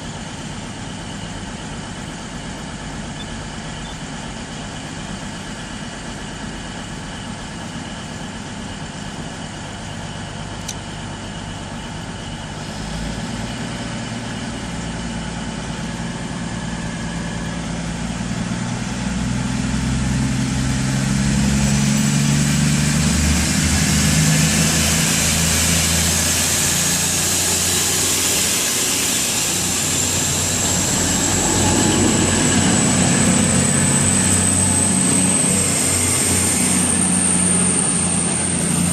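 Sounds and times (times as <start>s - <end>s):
diesel train engines: 0.0s - 38.9s
high whine: 9.8s - 38.9s.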